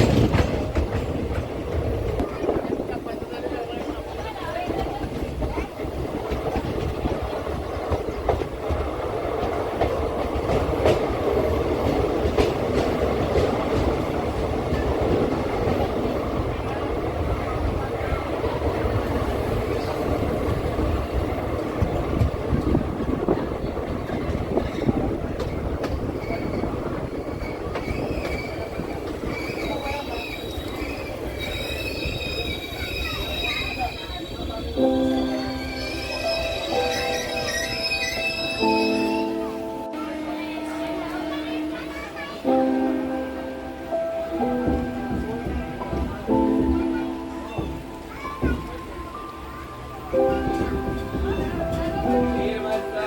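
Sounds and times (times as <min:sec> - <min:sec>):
wheels clicking over rail joints: 0:00.0 - 0:35.0
train wheels rumbling on rail: 0:00.0 - 0:53.0
high wheel squeal: 0:26.2 - 0:39.3.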